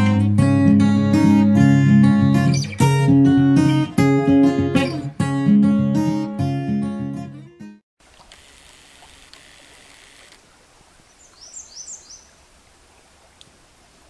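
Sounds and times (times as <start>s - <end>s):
strummed acoustic guitar: 0.0s - 7.8s
faint outdoor ambience: 8.0s - 14.0s
high bird chirps: 11.2s - 12.3s.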